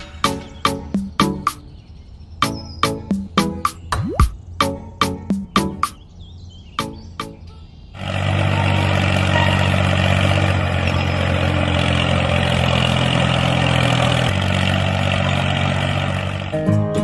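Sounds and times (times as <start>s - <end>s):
tractor engine idling: 8.0s - 17.0s.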